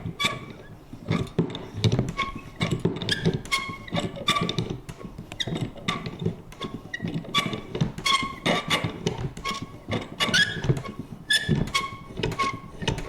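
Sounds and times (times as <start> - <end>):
paper punch creaking and clacking: 0.0 - 13.0.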